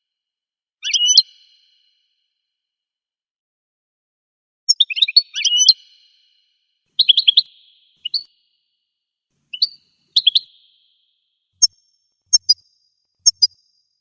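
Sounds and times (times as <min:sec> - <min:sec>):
bird twittering song: 0:00.8 - 0:02.1, 0:04.7 - 0:14.0.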